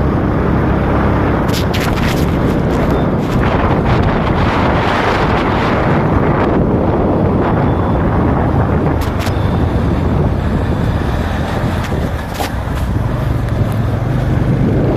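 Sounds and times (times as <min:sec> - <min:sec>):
motorcycle engine running: 0:00.0 - 0:14.9
wind on microphone: 0:00.0 - 0:14.9
sharp clicks: 0:09.0 - 0:09.4.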